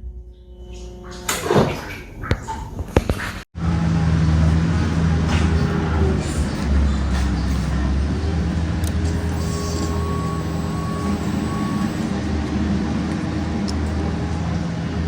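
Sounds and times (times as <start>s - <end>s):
high beeping tone: 8.4s - 13.4s.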